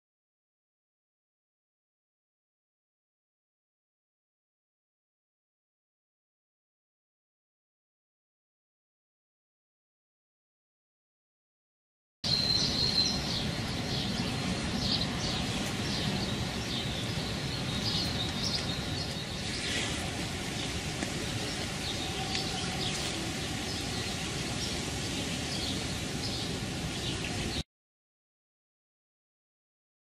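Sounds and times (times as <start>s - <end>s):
outdoor background hiss: 12.3s - 27.6s
small birds chirping: 12.3s - 27.6s.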